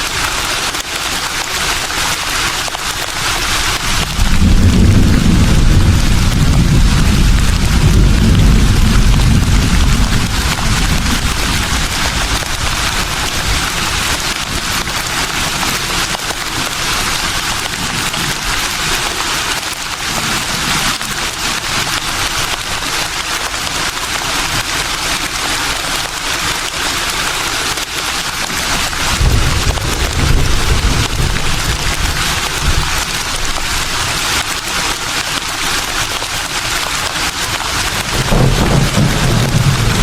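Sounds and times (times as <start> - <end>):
leaves rustling in a breeze: 0.0 - 40.0
wind rumble on microphone: 3.4 - 18.8, 28.4 - 34.6, 37.4 - 40.0.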